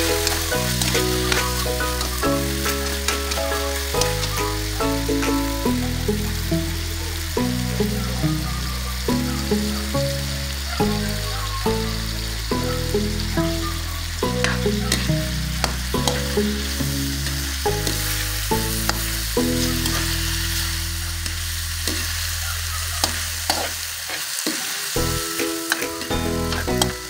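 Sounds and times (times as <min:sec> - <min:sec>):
background music with bass line: 0:00.0 - 0:23.3, 0:25.0 - 0:25.4, 0:26.0 - 0:27.0
food sizzling in a frying pan: 0:00.0 - 0:27.0
spatula scraping and tapping pan: 0:14.4 - 0:16.6, 0:23.0 - 0:24.6, 0:25.3 - 0:27.0.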